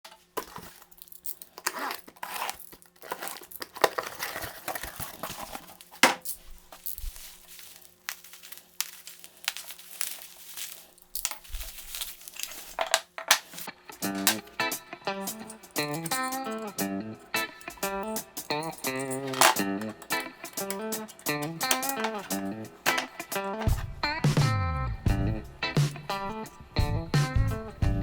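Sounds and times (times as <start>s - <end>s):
wrapping material crinkling: 0.0s - 16.7s, 17.6s - 23.9s.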